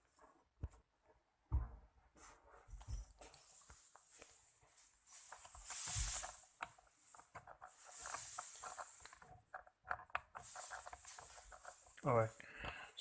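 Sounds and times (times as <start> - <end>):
rustling: 3.4 - 12.4.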